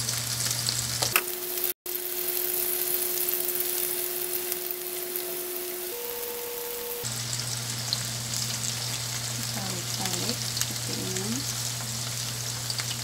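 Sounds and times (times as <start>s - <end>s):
food sizzling in hot oil: 0.0s - 13.0s
steady low tone: 2.4s - 7.1s.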